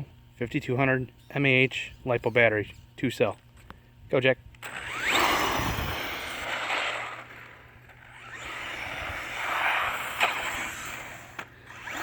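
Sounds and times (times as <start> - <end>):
electric toy truck motor whining: 4.6 - 12.0.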